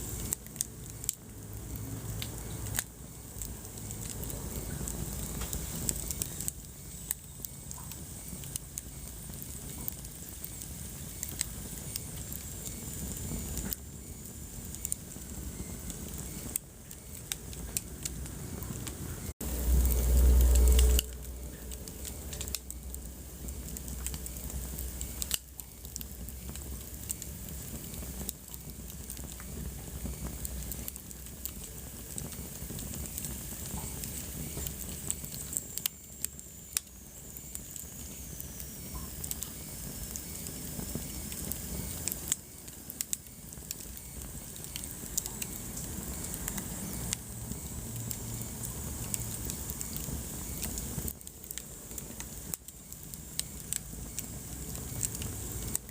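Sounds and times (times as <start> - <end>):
wood fire crackling and popping: 0.0 - 55.9.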